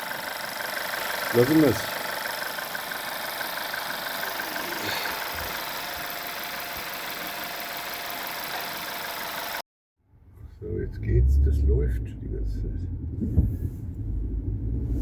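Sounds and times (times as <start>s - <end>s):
car engine idling: 0.0s - 9.6s, 10.2s - 15.0s
fast ticking engine clatter: 0.0s - 9.6s.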